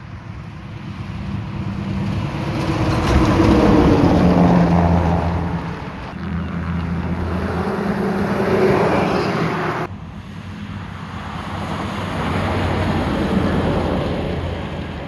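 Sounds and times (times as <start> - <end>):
trucks passing: 0.0 - 15.0.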